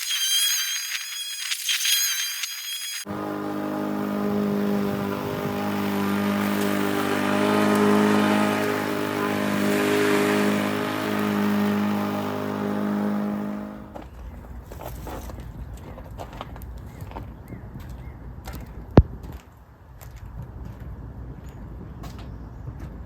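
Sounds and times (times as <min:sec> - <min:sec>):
lawn mower engine running: 0:03.1 - 0:14.0.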